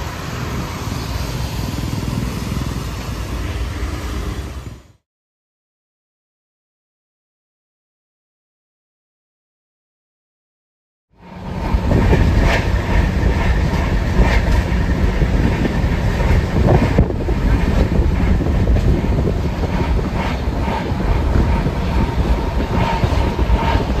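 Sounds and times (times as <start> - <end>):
train rumble from aboard: 0.0 - 5.0, 11.2 - 24.0
wheels clattering over rails: 11.2 - 24.0.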